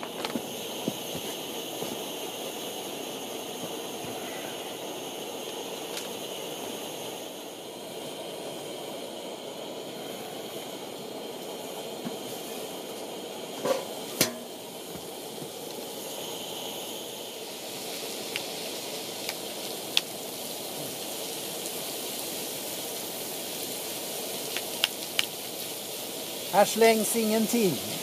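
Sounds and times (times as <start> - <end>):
food sizzling while frying: 0.0 - 28.0.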